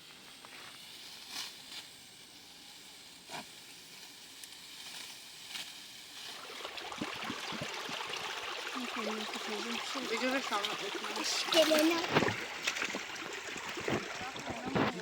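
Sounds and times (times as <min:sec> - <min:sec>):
water splashing and trickling: 0:05.2 - 0:15.0.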